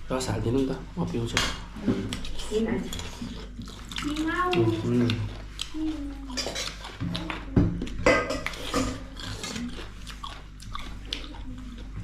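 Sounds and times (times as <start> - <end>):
utensils clinking on plates: 6.3 - 6.8, 8.0 - 9.6.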